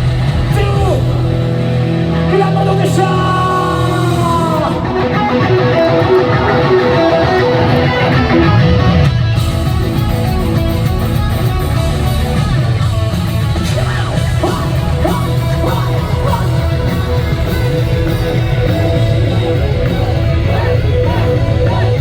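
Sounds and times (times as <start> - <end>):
electric guitar: 0.0 - 22.0
live rock band playing: 0.0 - 22.0.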